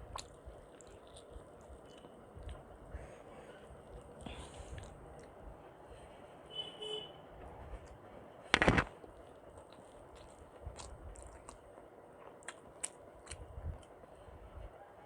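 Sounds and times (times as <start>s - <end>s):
loud crunching bite: 8.5s - 9.0s
wet mouth clicks and smacks: 10.2s - 11.6s.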